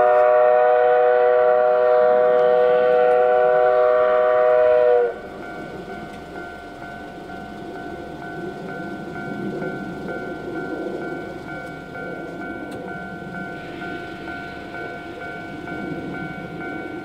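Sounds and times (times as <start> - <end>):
train whistle blast: 0.0 - 5.3
train running noise: 0.0 - 17.0.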